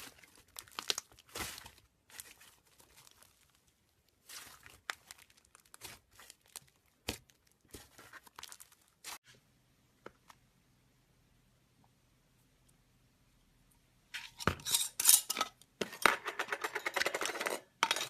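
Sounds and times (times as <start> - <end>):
slime crackling and popping: 0.0 - 9.2.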